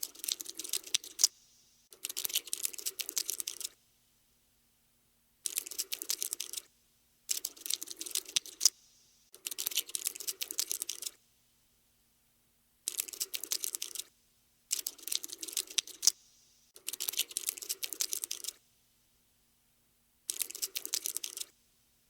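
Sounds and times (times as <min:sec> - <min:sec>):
cockroach scuttling clicks: 0:00.0 - 0:03.8, 0:05.4 - 0:06.7, 0:07.3 - 0:08.8, 0:09.4 - 0:11.2, 0:12.9 - 0:14.1, 0:14.7 - 0:16.2, 0:16.8 - 0:18.6, 0:20.3 - 0:21.5.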